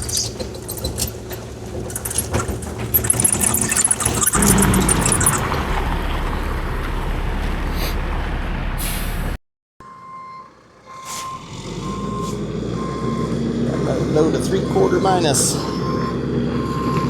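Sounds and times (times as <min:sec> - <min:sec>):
excavator diesel engine running: 0:00.0 - 0:09.4, 0:10.0 - 0:17.0
truck engine: 0:00.0 - 0:17.0
truck backup alarm beeping: 0:02.9 - 0:06.0, 0:09.8 - 0:17.0.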